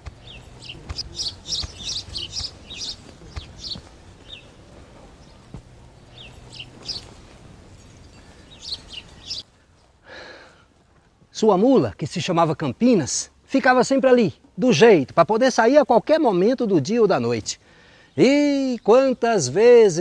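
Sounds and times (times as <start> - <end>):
small birds chirping: 0.0 - 9.9, 17.2 - 20.0.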